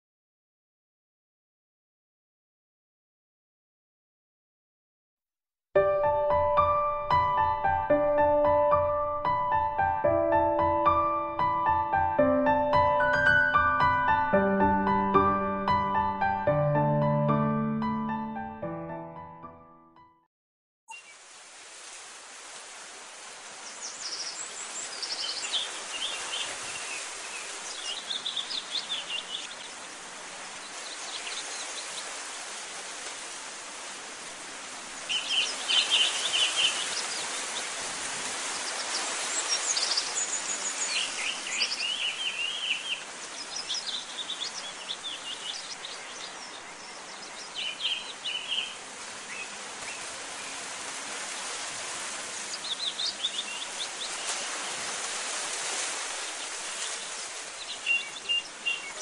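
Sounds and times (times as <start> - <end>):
steady outdoor hiss: 20.9 - 59.0
small birds chirping: 23.6 - 32.2, 34.9 - 54.8, 56.1 - 59.0.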